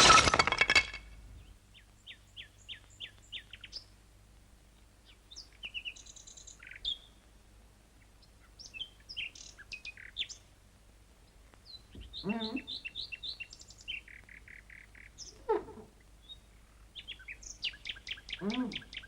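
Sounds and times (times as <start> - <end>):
small bird chirping: 5.0 - 7.2, 8.2 - 10.4, 11.6 - 15.4, 16.2 - 19.0.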